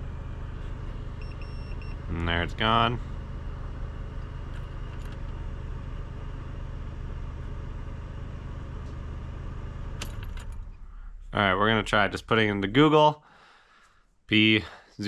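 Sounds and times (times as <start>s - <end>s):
engine idling with low hum: 0.0s - 13.5s.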